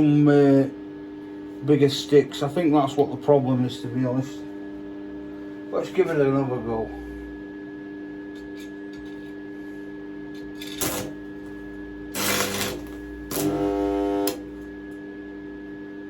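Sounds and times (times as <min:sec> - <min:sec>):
buzzing welding arc: 0:10.4 - 0:14.7
stick welder humming: 0:10.4 - 0:15.0
welding sizzle: 0:10.5 - 0:14.7
welding crackle: 0:10.6 - 0:14.6.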